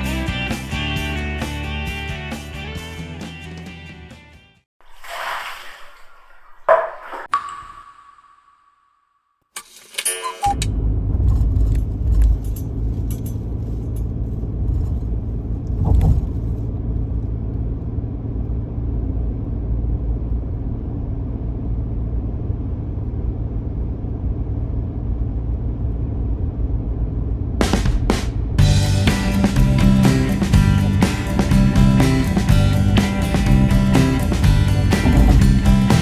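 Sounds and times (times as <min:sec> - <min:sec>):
light clicks and rattles: 0:09.9 - 0:16.6
car driving low rumble: 0:10.6 - 0:36.0.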